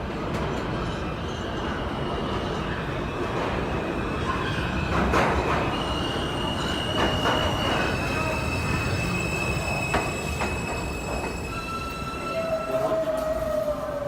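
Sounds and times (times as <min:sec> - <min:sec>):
subway train rumbling on rails: 0:00.0 - 0:14.0
high-pitched wheel squeal: 0:05.7 - 0:13.4.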